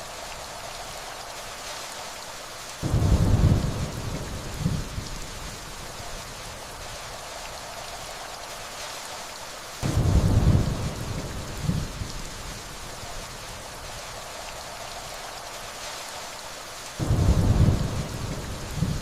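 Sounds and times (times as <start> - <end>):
steady rainfall: 0.0 - 19.0
low rumble of thunder: 2.8 - 7.0, 9.8 - 14.0, 17.0 - 19.0.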